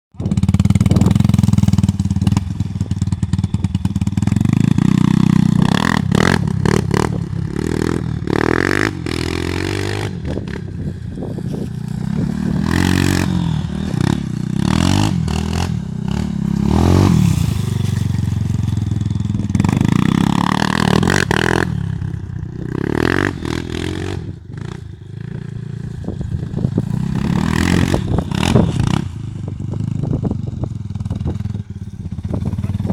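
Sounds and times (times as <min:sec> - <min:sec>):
vehicle engine revving: 0:00.4 - 0:30.3.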